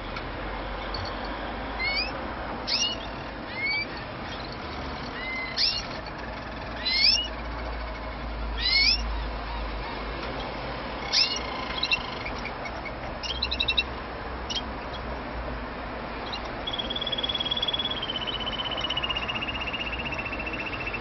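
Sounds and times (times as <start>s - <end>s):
canary chirping and trilling: 0.8s - 9.8s, 10.4s - 15.1s, 16.2s - 21.0s.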